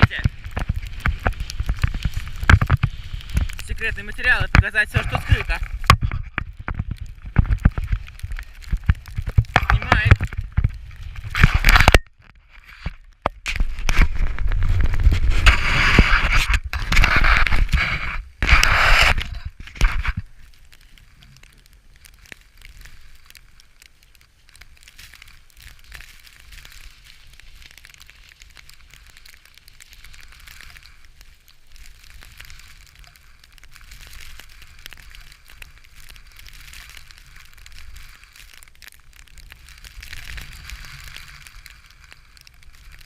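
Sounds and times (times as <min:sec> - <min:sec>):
wind rumbling on microphone: 0:00.0 - 0:23.6
crackling and rustling: 0:00.0 - 0:43.0.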